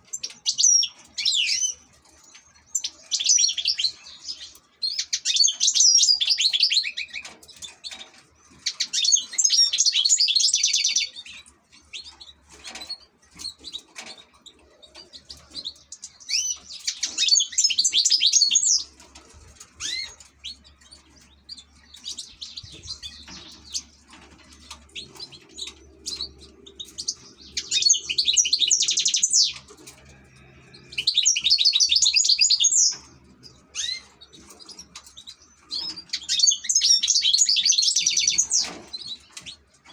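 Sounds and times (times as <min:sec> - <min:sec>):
finch tinkling twittering: 0:19.6 - 0:39.9.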